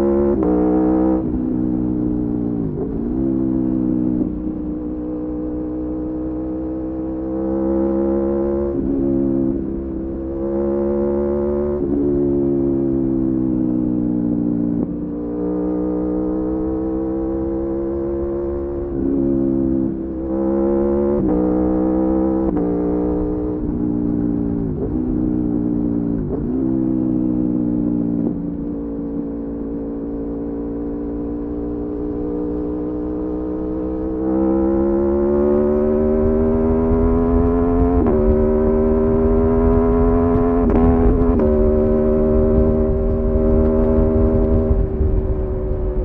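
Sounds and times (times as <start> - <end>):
motorcycle engine with gear changes: 0.0 - 46.0.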